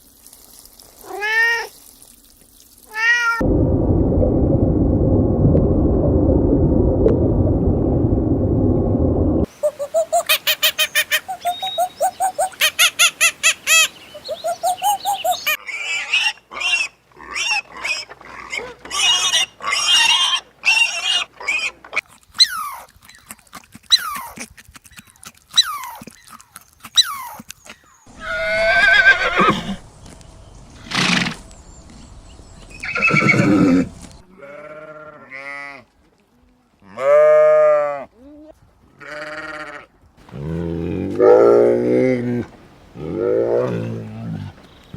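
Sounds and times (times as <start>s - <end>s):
farm animal calls: 9.5s - 21.8s
sheep bleating: 34.3s - 35.8s, 39.0s - 40.5s.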